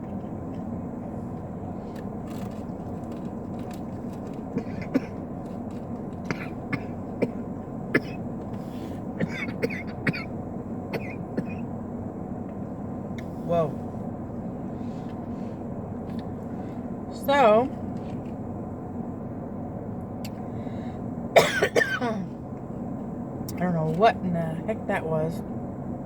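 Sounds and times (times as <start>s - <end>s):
steady low hum: 0.0s - 26.0s
cough-like throat sounds: 4.6s - 5.2s, 6.3s - 8.2s, 9.2s - 10.3s, 10.9s - 11.6s, 21.4s - 22.1s.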